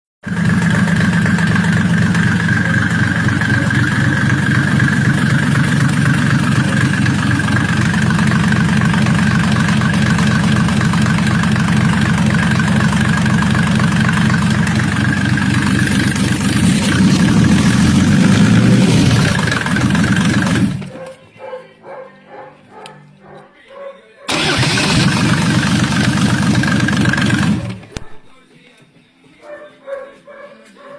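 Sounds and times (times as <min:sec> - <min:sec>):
diesel engine running: 0:00.2 - 0:21.0, 0:24.3 - 0:27.9.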